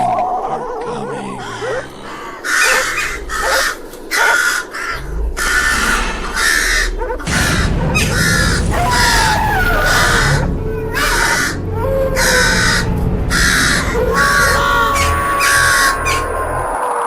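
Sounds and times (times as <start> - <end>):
crows cawing: 0.1 - 17.0
low rumble: 4.9 - 16.8.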